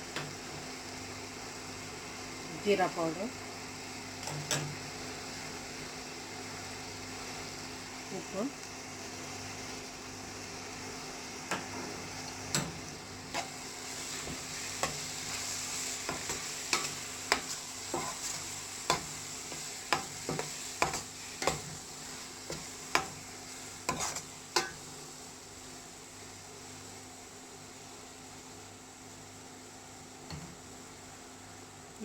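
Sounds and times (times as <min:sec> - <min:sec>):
masala sizzling in a pan: 0:00.0 - 0:32.0
spoon tapping and scraping pan: 0:16.0 - 0:21.8, 0:22.5 - 0:23.2, 0:23.9 - 0:24.8.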